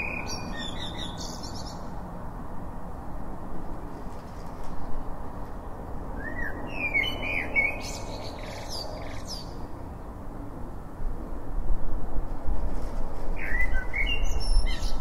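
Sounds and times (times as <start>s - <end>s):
birds chirping and whistling: 13.4s - 15.0s.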